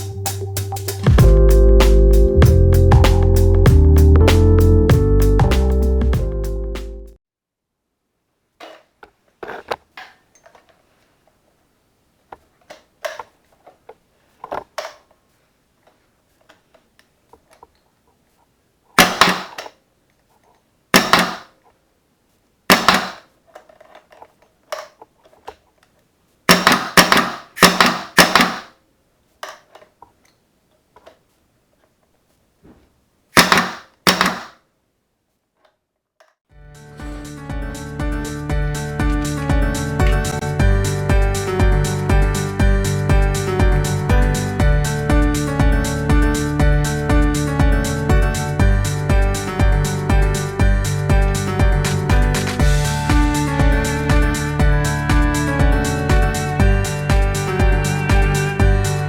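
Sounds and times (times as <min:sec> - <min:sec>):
pneumatic screwdriver air blasts: 0:26.5 - 0:28.7, 0:33.4 - 0:34.5.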